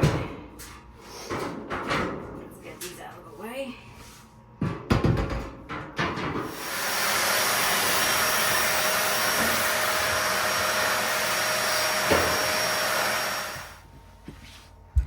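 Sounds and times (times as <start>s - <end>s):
electric motor rushing with whine: 6.5s - 13.8s.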